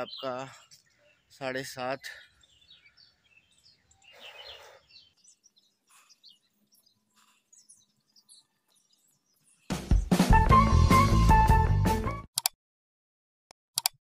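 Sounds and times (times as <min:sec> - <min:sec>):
birds chirping: 0:00.0 - 0:10.0
music with guitar and drums: 0:09.7 - 0:12.2.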